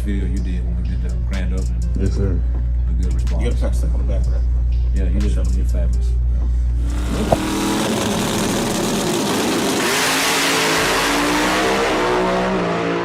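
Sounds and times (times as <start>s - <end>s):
car engine revving: 6.8s - 13.0s.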